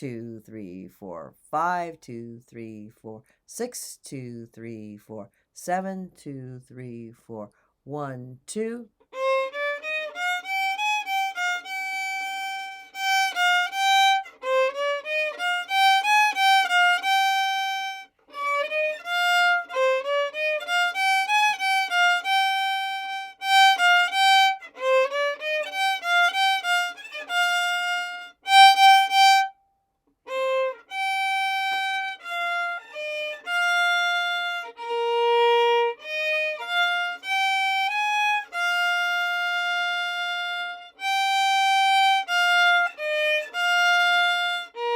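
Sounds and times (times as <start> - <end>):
violin playing a melody: 9.0 - 44.9.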